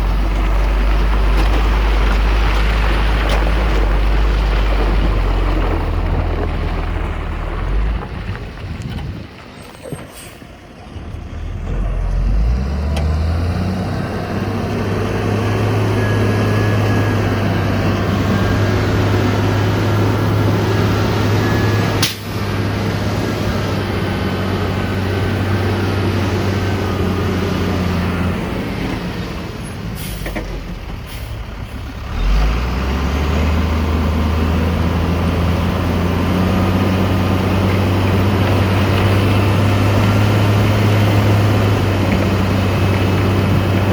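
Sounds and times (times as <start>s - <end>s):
heavy diesel engine running hard: 10.2s - 43.9s.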